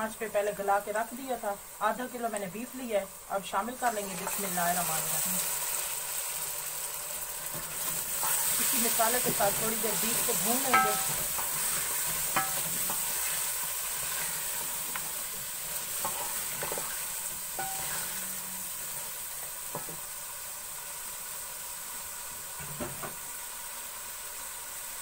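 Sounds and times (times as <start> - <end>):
meat sizzling in oil: 0.0 - 25.0
wooden spoon knocking on pot: 10.6 - 11.2.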